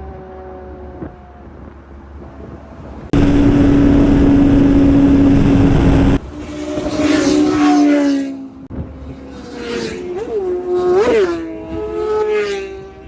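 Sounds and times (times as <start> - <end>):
superbike engines revving: 3.2 - 6.2.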